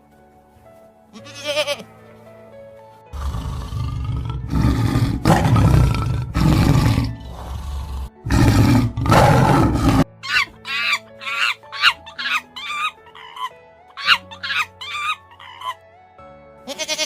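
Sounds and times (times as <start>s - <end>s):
tiger roaring: 3.2s - 10.1s.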